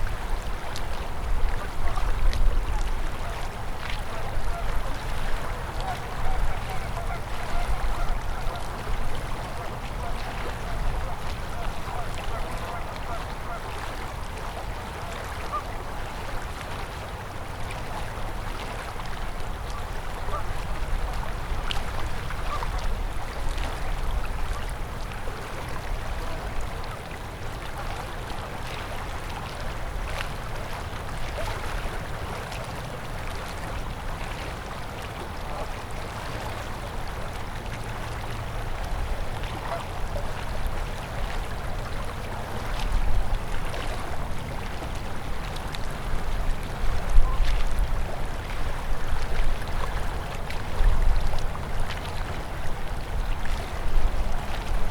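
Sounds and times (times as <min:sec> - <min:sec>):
river water rushing: 0:00.0 - 0:54.9.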